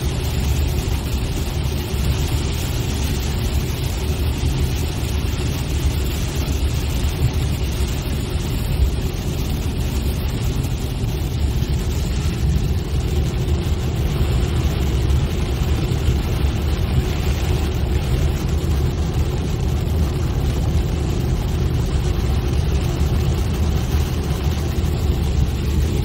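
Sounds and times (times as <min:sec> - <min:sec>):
car driving rumble: 0:07.2 - 0:26.0.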